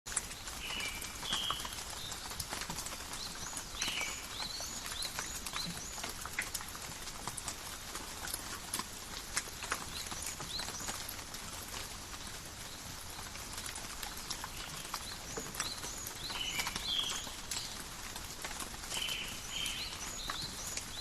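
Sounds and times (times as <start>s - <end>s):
rain dripping in forest: 0.1s - 21.0s
bird chirping: 0.4s - 2.3s, 2.9s - 6.1s, 14.1s - 17.8s, 18.9s - 21.0s.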